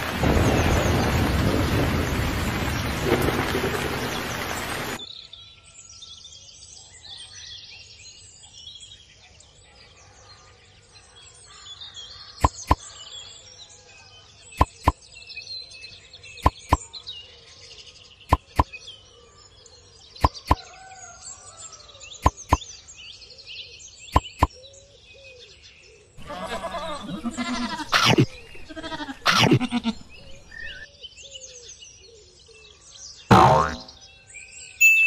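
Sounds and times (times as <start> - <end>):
heavy rain: 0.0 - 5.0
birdsong: 0.2 - 35.0
sharp pops: 12.4 - 12.8, 14.6 - 15.0, 16.4 - 16.8, 18.3 - 18.7, 22.2 - 22.6, 24.2 - 24.5.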